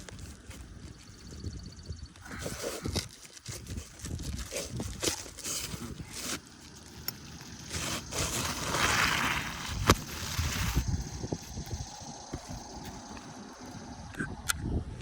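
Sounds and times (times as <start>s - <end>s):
roof shingle scraping and rustling: 2.3s - 13.3s.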